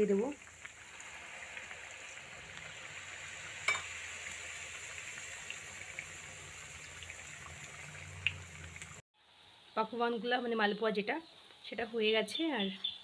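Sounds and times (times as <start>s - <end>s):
batter sizzling in hot oil: 0.0s - 9.0s.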